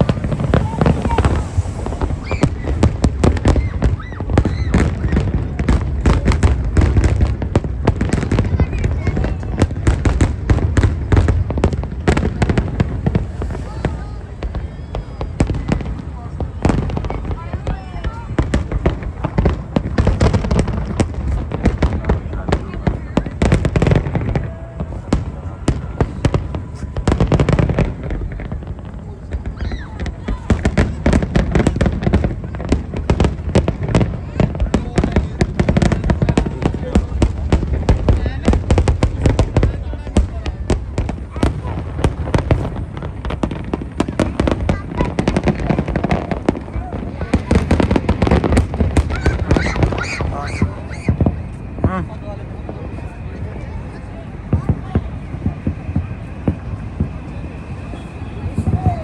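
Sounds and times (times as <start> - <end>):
low rumble: 0.0 - 6.0
fireworks bangs and crackling pops: 0.0 - 59.0.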